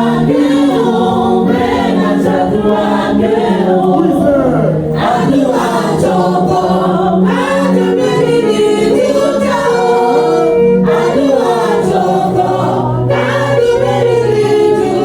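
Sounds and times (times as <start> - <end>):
choir and congregation singing: 0.0 - 15.0.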